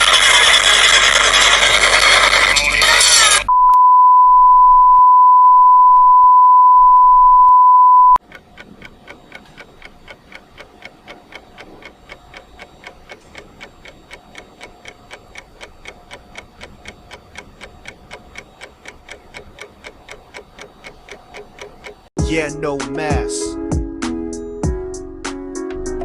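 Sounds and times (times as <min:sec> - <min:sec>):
high steady beep tone: 0:03.5 - 0:08.2
clock ticking: 0:08.2 - 0:22.1.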